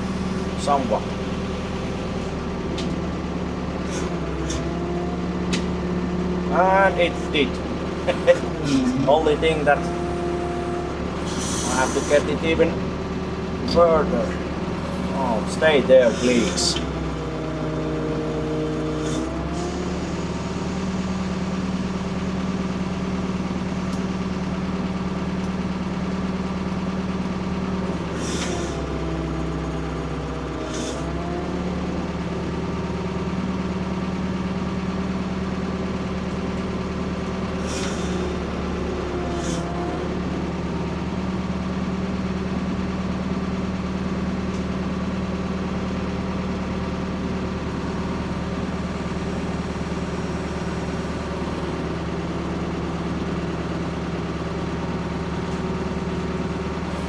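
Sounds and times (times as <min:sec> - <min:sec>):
excavator engine running: 0:00.0 - 0:57.0
high hydraulic hiss: 0:09.8 - 0:12.5, 0:14.9 - 0:21.5, 0:28.1 - 0:31.1, 0:37.6 - 0:39.8.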